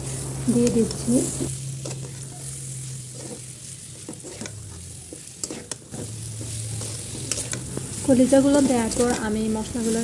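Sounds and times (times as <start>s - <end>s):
meat sizzling in oil: 0.0s - 10.0s
metal spatula scraping pan: 3.0s - 4.6s, 5.2s - 10.0s.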